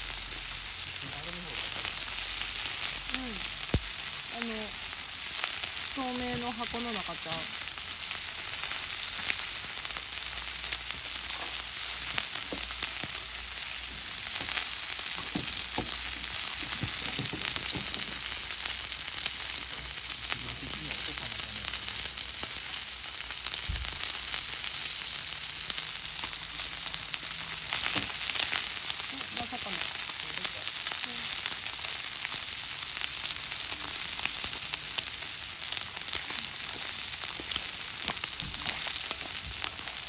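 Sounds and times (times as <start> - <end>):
meat sizzling on steel griddle: 0.0 - 40.0
fat popping: 14.3 - 18.4.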